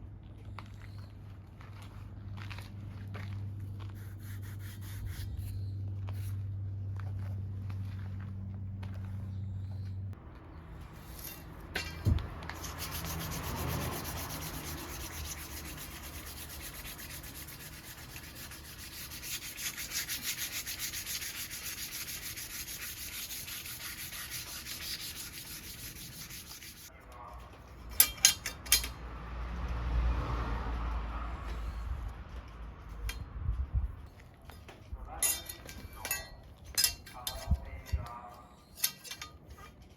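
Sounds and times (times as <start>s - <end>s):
harsh abrasive noise on steel: 10.9s - 26.9s
sharp metallic clinks: 27.9s - 29.0s, 35.1s - 39.6s.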